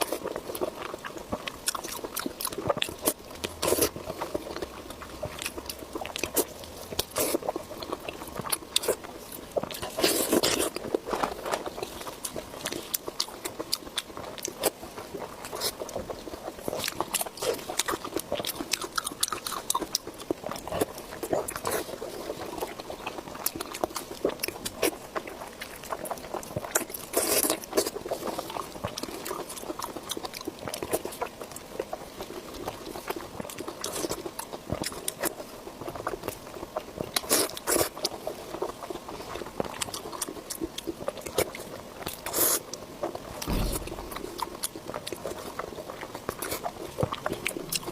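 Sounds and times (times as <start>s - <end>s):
wet chewing and crunching: 0.0s - 47.9s.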